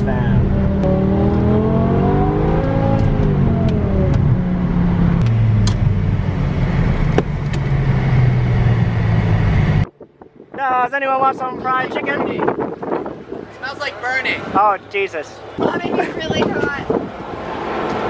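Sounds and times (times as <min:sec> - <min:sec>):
car engine droning: 0:00.0 - 0:09.9
road noise: 0:00.0 - 0:18.0.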